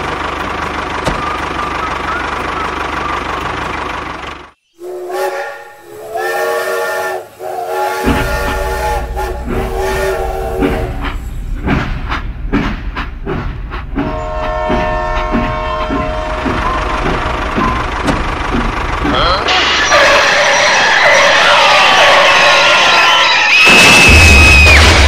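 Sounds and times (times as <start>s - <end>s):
toy train whistle blasts: 4.8s - 11.0s
toy train chugging clatter: 14.6s - 21.3s.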